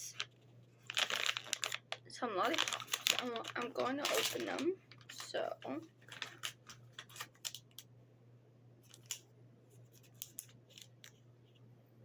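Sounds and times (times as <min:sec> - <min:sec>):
plastic wrapper crinkling: 0:00.0 - 0:07.8, 0:08.9 - 0:09.2, 0:10.0 - 0:11.2.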